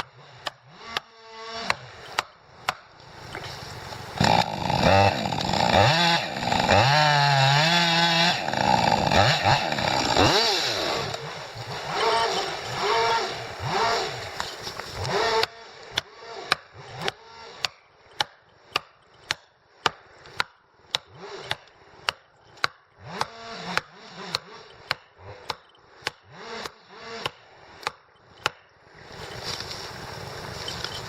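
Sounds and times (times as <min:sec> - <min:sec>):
chopping into wood: 0:00.4 - 0:03.5, 0:09.1 - 0:28.7.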